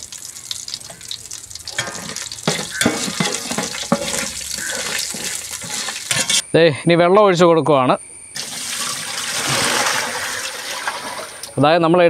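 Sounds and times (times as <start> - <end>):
food sizzling in hot oil: 0.0 - 6.4, 8.4 - 11.6
wire strainer stirring in pot: 0.0 - 6.4.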